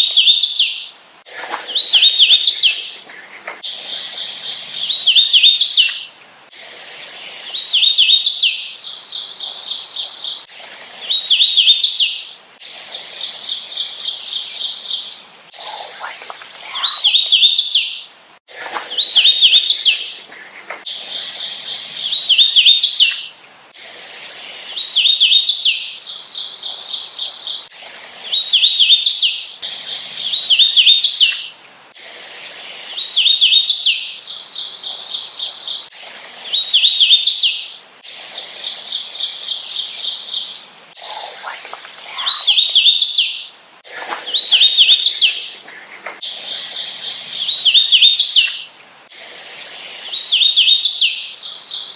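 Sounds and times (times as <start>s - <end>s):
bird singing whistled notes: 0.0s - 1.0s, 1.7s - 2.9s, 3.6s - 6.2s, 7.5s - 12.3s, 16.6s - 18.1s, 18.9s - 20.2s, 20.9s - 23.4s, 24.8s - 27.7s, 28.3s - 31.6s, 32.9s - 35.9s, 36.5s - 37.7s, 42.1s - 43.5s, 46.2s - 48.7s, 50.1s - 51.9s.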